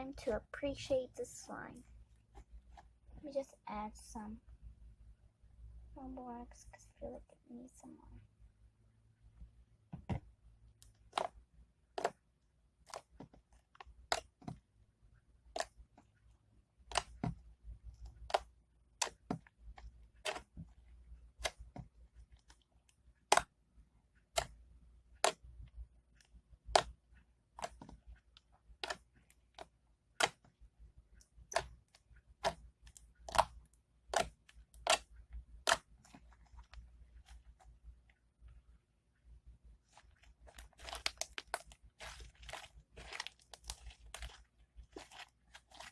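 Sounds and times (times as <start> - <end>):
slime clicking and popping: 16.8 - 17.4, 24.2 - 24.6, 31.4 - 36.8.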